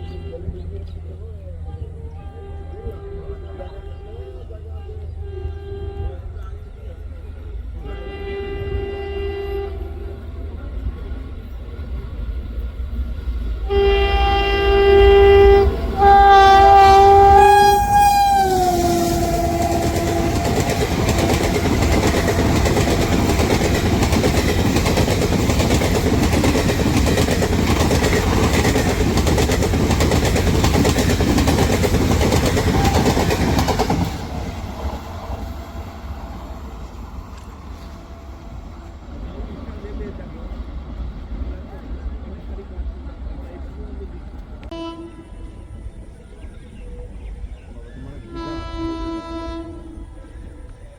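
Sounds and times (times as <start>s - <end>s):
train horn blasts: 0.0s - 0.9s, 2.1s - 6.6s, 7.8s - 10.6s, 13.6s - 36.7s, 44.6s - 45.8s, 48.2s - 50.4s
train coaches rumbling past: 0.0s - 50.9s.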